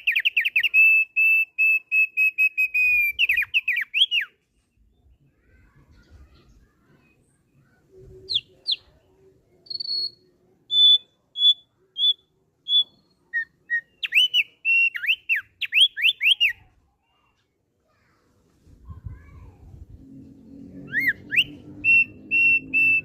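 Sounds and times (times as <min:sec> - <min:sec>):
white-eye whistled song: 0:00.0 - 0:04.3, 0:09.7 - 0:16.6, 0:20.9 - 0:23.0.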